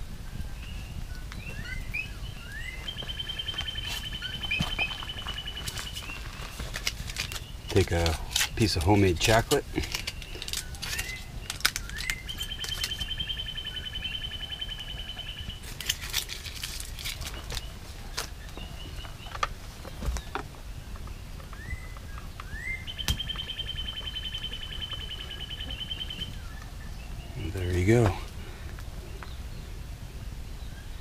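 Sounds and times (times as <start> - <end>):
bird trilling: 1.4 - 6.6, 10.0 - 15.6, 21.5 - 28.3.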